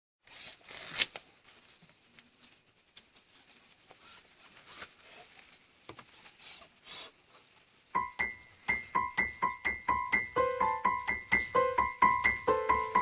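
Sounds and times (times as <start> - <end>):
short clicks and rustles: 0.2 - 7.9.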